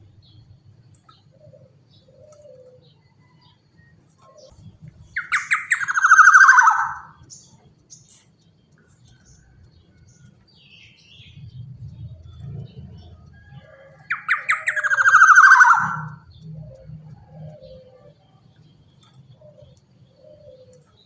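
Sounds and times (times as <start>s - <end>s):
faint bird chirps: 0.0s - 21.0s
faint low hum: 0.0s - 21.0s
bird rasping call: 5.2s - 7.2s, 14.1s - 16.2s.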